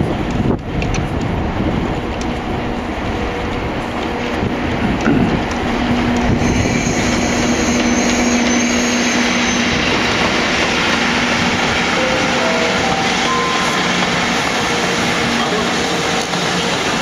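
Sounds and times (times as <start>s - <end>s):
freight train rolling on rails: 0.0s - 17.0s
thin high tone: 11.9s - 14.5s.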